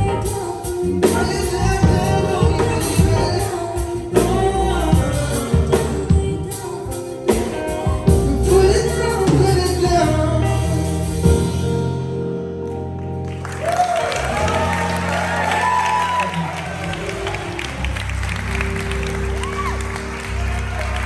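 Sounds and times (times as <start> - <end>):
person singing: 0.0 - 11.5
live band playing: 0.0 - 21.0.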